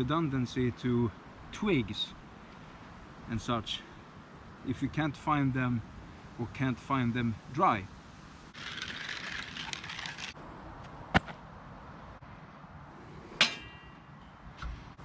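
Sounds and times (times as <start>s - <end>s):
camp stove gear rustling: 8.6s - 10.4s
ringing metallic clank: 13.4s - 14.4s.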